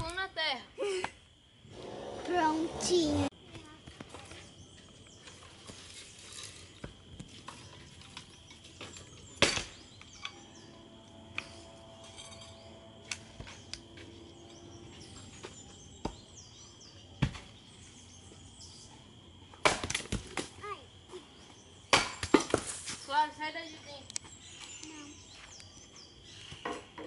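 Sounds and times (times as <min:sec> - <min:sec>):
birds chirping faintly: 0:00.0 - 0:19.6, 0:20.6 - 0:27.0
steady high hum: 0:09.3 - 0:17.0
firewood snapping and knocking: 0:09.4 - 0:09.8, 0:19.6 - 0:20.5, 0:21.9 - 0:22.8.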